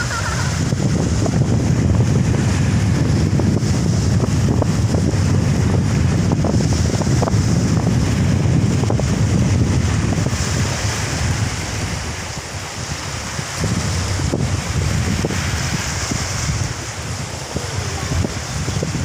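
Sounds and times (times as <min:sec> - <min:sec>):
surf waves rushing: 0:00.0 - 0:19.0
wind buffeting microphone: 0:00.0 - 0:19.0.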